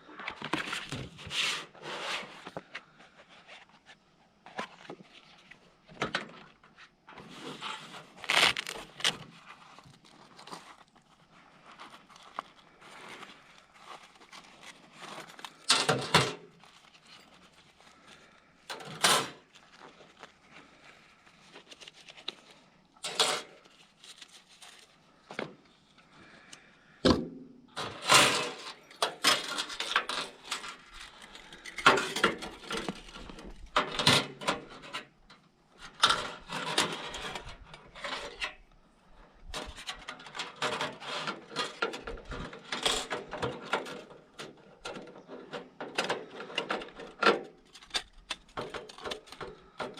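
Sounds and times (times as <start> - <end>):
camp gear knocking and rattling: 27.0 - 34.9.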